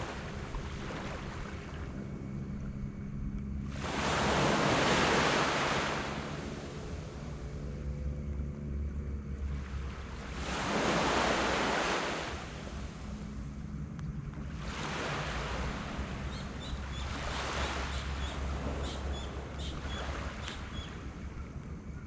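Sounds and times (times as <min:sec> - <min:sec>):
sea waves breaking on beach: 0:00.0 - 0:02.0, 0:03.6 - 0:07.5, 0:09.4 - 0:13.6, 0:14.4 - 0:21.2
faint low hum: 0:00.0 - 0:22.0.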